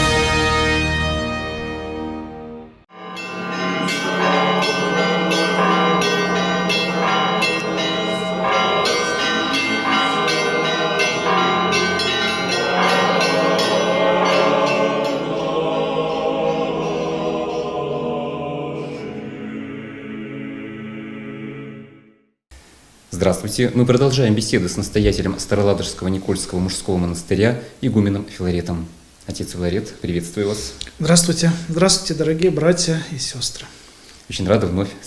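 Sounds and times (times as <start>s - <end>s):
church bells ringing: 2.9s - 18.2s.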